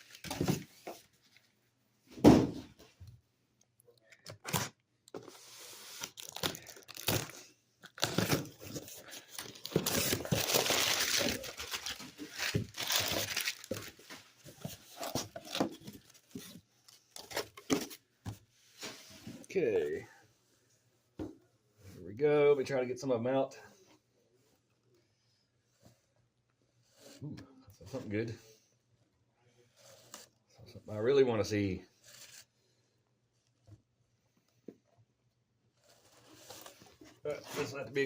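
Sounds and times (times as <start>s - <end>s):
cardboard rustling: 0.0s - 1.5s, 4.4s - 19.5s, 35.8s - 38.0s
paper crumpling and tearing: 5.4s - 14.1s.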